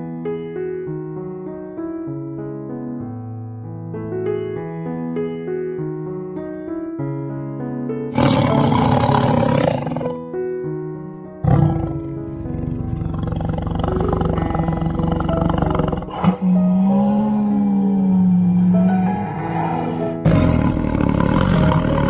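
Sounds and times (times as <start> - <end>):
piano music: 0.0 - 22.0
tiger roaring: 8.1 - 10.2, 11.4 - 22.0.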